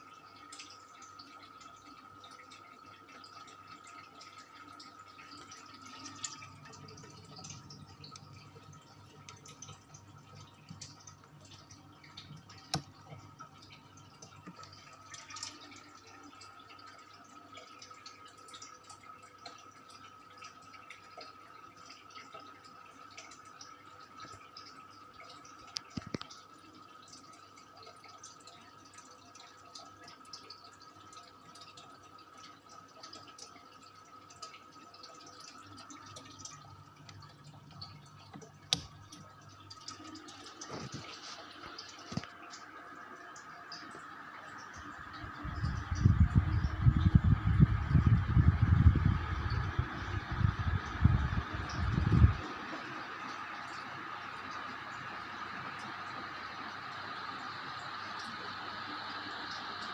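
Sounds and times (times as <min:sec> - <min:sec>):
ceiling fan whine: 0:33.8 - 0:59.9.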